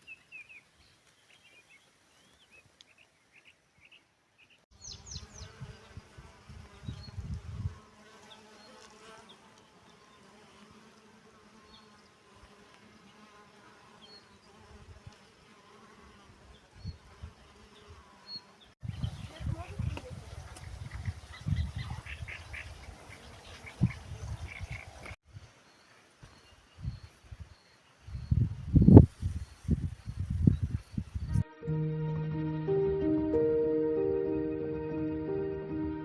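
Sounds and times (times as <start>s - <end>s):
small birds chirping: 0.0s - 7.3s, 16.5s - 31.4s
insects buzzing: 4.8s - 19.4s.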